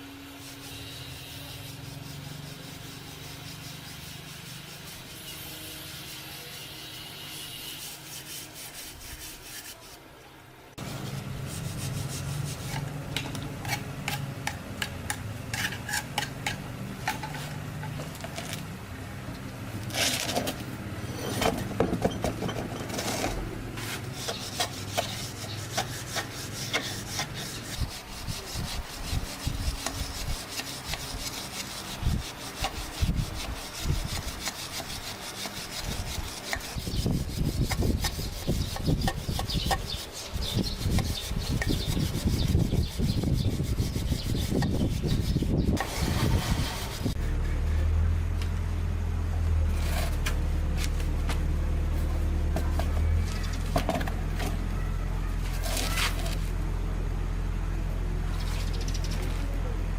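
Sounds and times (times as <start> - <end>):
hand scraping strokes: 0.0 - 10.0, 10.8 - 18.6, 22.4 - 47.9, 52.1 - 56.5
steady low hum: 0.0 - 59.9.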